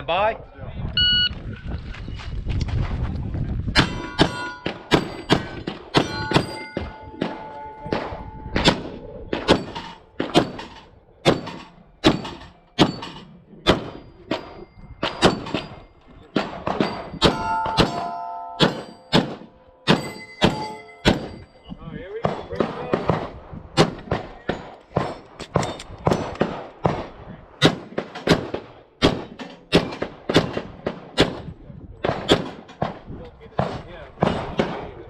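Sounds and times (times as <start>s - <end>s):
steel plates ringing: 3.8s - 8.9s, 9.5s - 21.8s
pistol shots: 3.8s - 15.7s, 16.3s - 21.4s, 22.2s - 35.0s.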